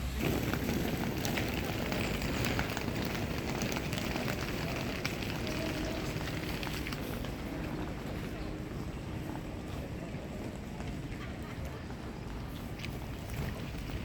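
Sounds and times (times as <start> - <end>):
steady rain: 0.0 - 7.7
raindrops ticking on surfaces: 0.0 - 7.8.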